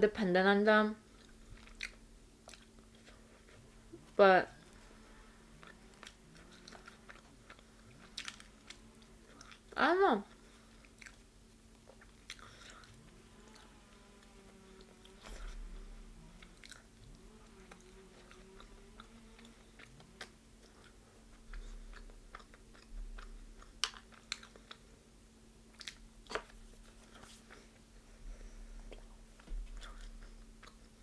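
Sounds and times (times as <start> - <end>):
person chewing crispy fried chicken: 1.1 - 3.7, 4.9 - 13.7, 16.4 - 25.0, 25.7 - 27.9, 28.9 - 31.0.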